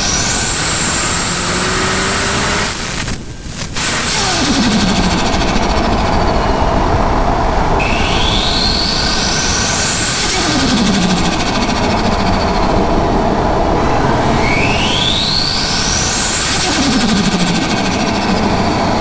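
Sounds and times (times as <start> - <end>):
turbo whistle: 0.0 - 13.2
car engine accelerating hard: 0.0 - 19.0
turbo flutter on gear change: 0.0 - 19.0.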